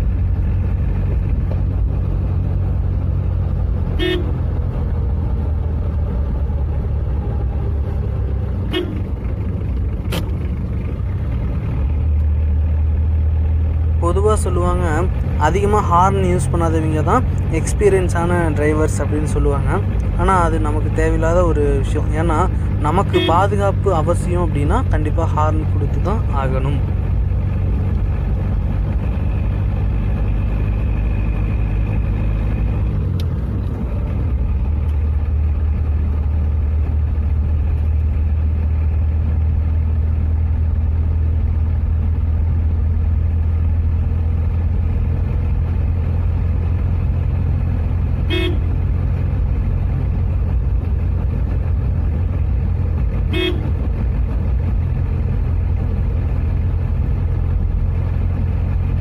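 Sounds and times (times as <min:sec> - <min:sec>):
car engine running: 0:00.0 - 0:59.0
car horn toots: 0:04.0 - 0:04.4, 0:08.7 - 0:09.1, 0:23.1 - 0:23.5, 0:48.2 - 0:48.8, 0:53.3 - 0:53.7.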